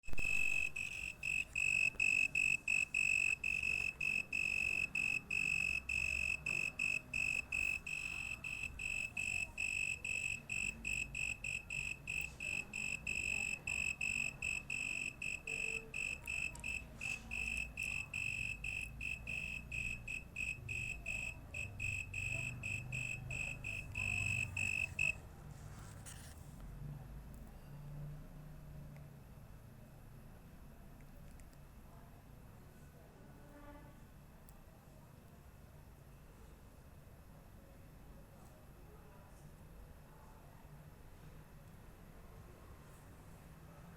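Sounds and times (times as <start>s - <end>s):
insect buzzy trill: 0.1s - 25.2s.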